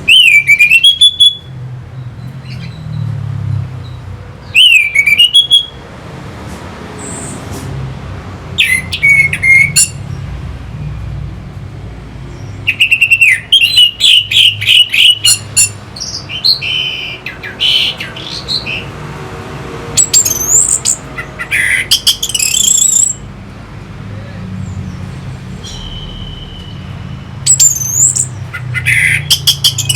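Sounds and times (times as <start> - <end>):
thrush singing whistled phrases: 0.0 - 1.6, 4.5 - 5.8, 8.6 - 10.0, 12.6 - 18.9, 20.0 - 23.3, 25.6 - 29.9.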